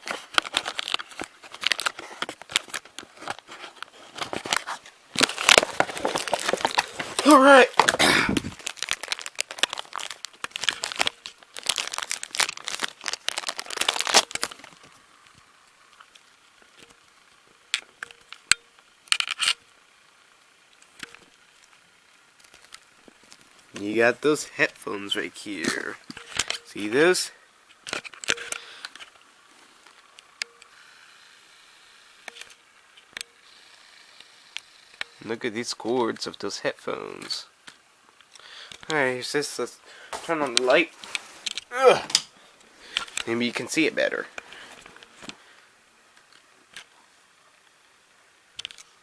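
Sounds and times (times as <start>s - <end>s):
packaging crinkling: 0.0s - 15.0s, 22.4s - 24.4s.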